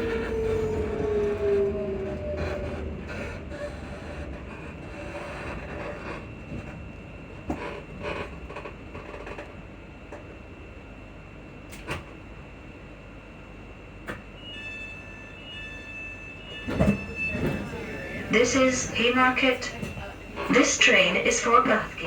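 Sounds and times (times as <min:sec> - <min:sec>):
train running rumble: 0:00.0 - 0:14.3, 0:16.3 - 0:22.0
faint steady high tone: 0:14.3 - 0:20.4.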